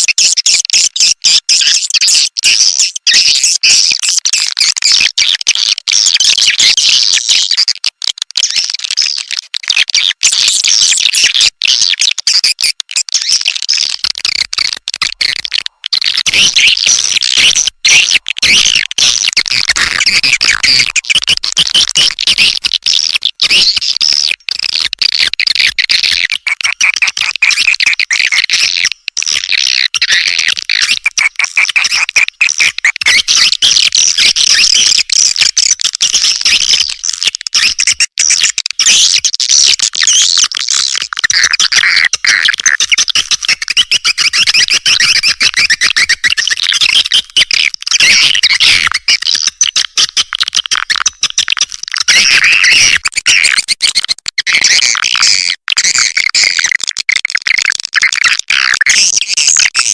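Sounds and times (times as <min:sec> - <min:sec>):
swiftlets chirping and twittering: 0:14.6 - 0:24.4, 0:39.9 - 0:50.1.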